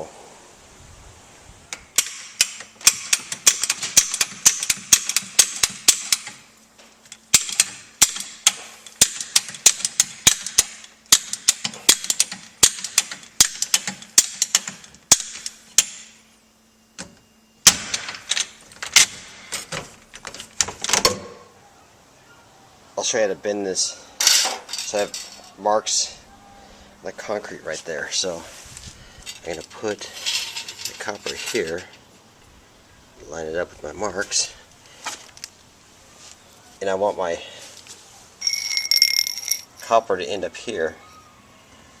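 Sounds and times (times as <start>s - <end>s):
metal hand tools clicking and clattering: 29.2s - 32.0s, 38.4s - 39.8s.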